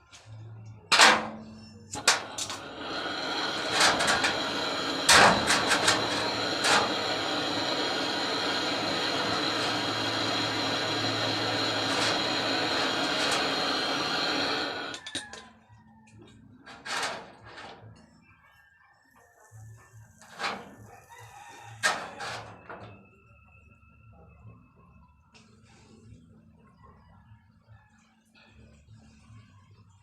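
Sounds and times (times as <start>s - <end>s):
small electric motor whining: 2.0s - 15.3s.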